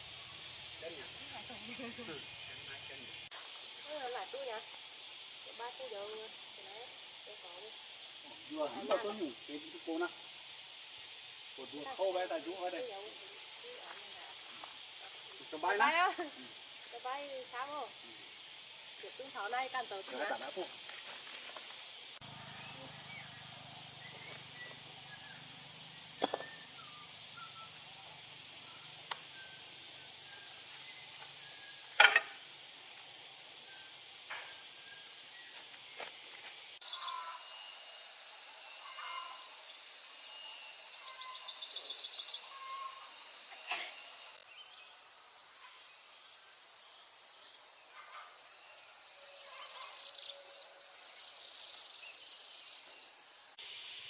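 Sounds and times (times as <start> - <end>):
harsh hiss with pulsing trill: 0.0 - 44.4, 53.5 - 54.0
high-pitched insect drone: 0.0 - 54.0.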